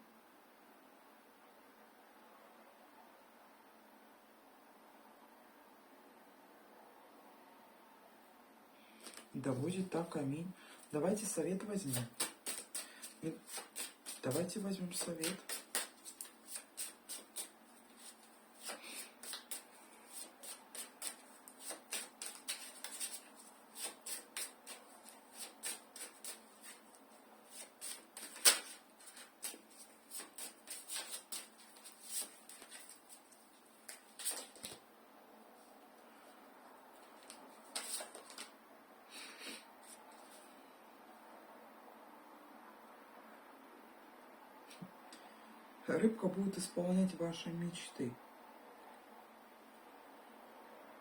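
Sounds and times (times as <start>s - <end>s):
cards being shuffled: 9.0s - 9.3s, 11.6s - 34.8s, 37.0s - 38.5s
card snap: 11.9s - 12.9s, 15.0s - 17.5s, 27.8s - 28.8s.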